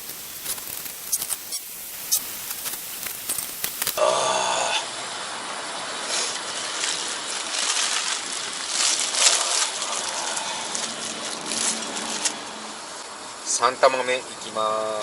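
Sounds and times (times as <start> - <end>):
slurping noodles: 6.0 - 12.4.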